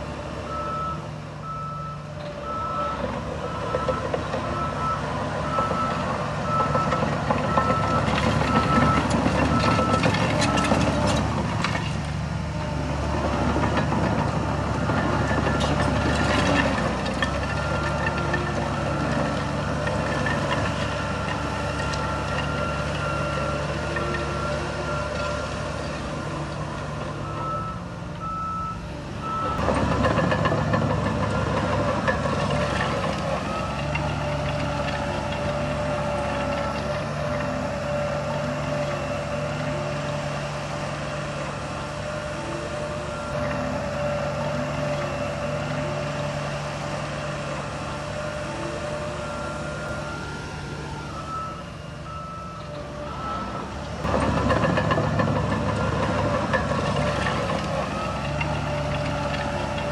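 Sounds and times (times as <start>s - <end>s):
diesel machine engine running: 0.0s - 59.9s
reversing alarm beeps: 0.5s - 10.8s, 27.2s - 29.6s, 48.2s - 53.8s.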